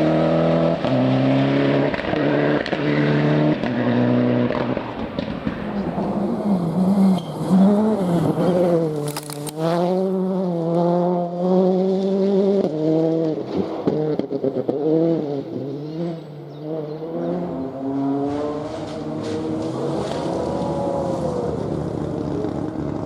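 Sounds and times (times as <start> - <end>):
rally car engine revving: 0.0 - 23.0
engine exhaust cracks: 8.9 - 9.7.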